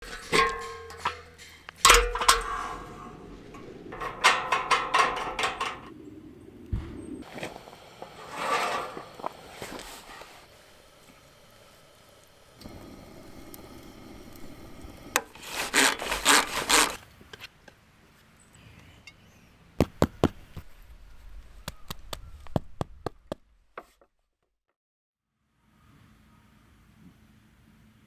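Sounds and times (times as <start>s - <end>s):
rasping strokes on wood: 15.2s - 17.0s.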